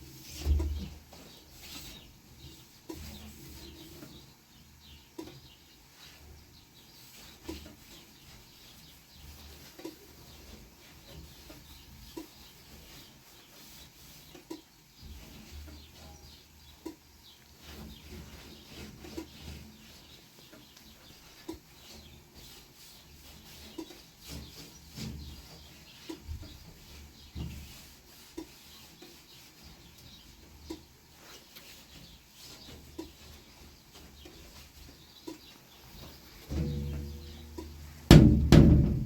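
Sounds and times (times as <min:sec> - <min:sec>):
scraping: 0:35.8 - 0:39.0
light knocks: 0:36.5 - 0:39.0
low rumbling: 0:36.5 - 0:39.0.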